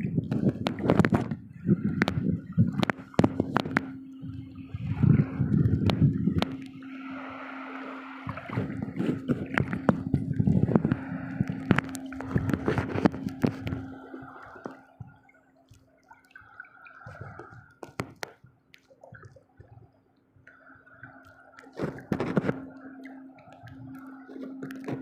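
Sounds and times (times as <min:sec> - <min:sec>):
steady low hum: 0:00.0 - 0:17.8, 0:20.5 - 0:25.0
water splashing and dripping: 0:00.0 - 0:25.0
knocks and clicks: 0:00.2 - 0:06.8, 0:08.3 - 0:15.1.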